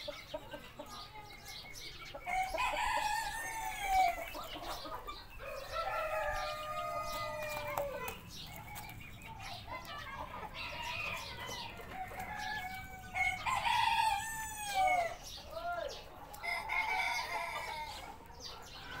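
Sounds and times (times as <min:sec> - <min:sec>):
chickens clucking: 0:00.0 - 0:19.0
rooster crowing: 0:05.4 - 0:08.0, 0:12.3 - 0:15.2, 0:16.4 - 0:18.1.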